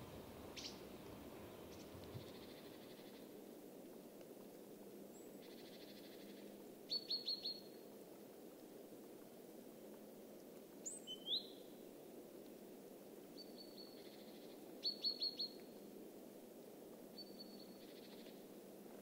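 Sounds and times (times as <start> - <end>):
faint outdoor hiss: 0.0 - 19.0
small birds chirping: 0.5 - 3.3, 5.1 - 7.8, 10.8 - 11.7.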